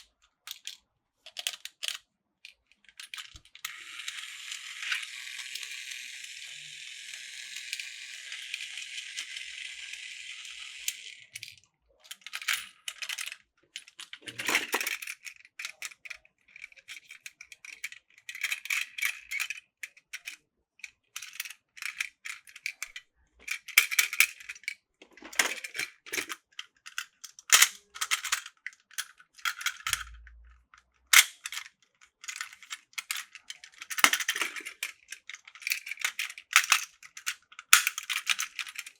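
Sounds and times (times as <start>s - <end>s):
plastic toy parts rattling: 0.0s - 38.9s.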